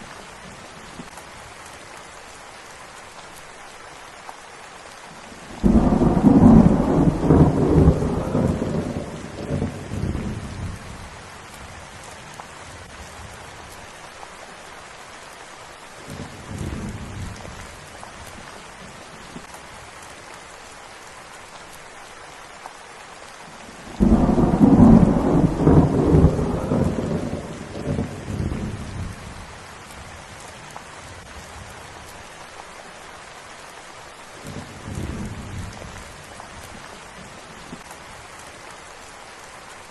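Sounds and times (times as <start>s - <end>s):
steady rain: 0.0s - 39.9s
thunder rumbling: 5.5s - 11.1s, 23.9s - 30.4s.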